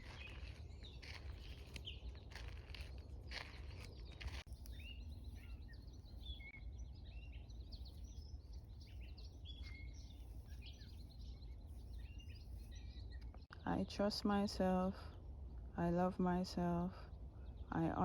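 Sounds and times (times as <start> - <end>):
steady low rumble: 0.0 - 7.0
birds chirping: 0.0 - 18.0.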